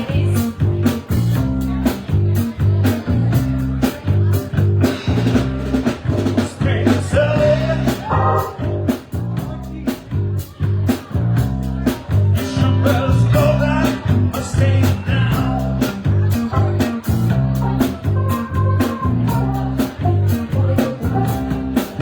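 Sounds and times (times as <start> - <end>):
bass guitar: 0.0 - 22.0
drum kit: 0.0 - 22.0
electric guitar: 0.0 - 22.0
person singing: 6.4 - 8.7, 12.4 - 22.0.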